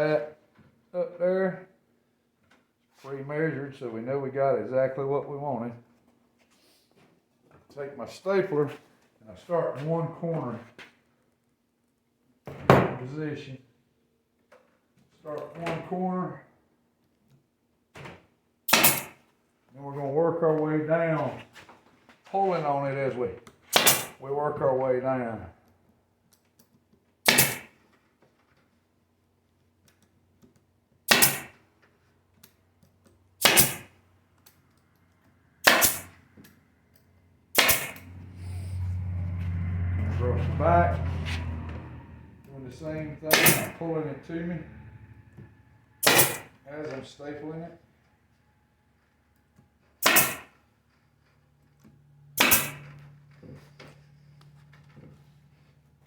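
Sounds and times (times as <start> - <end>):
staple gun firing: 23.8 - 24.1, 27.3 - 27.7, 31.1 - 31.5, 33.4 - 33.9, 35.7 - 36.1, 37.6 - 38.0, 43.3 - 43.7, 50.0 - 50.5, 52.4 - 52.8
low steady hum: 36.2 - 47.7.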